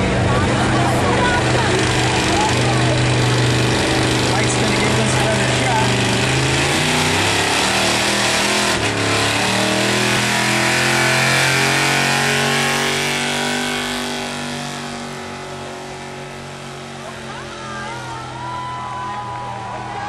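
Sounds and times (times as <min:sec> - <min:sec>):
truck engine revving high: 0:00.0 - 0:20.0.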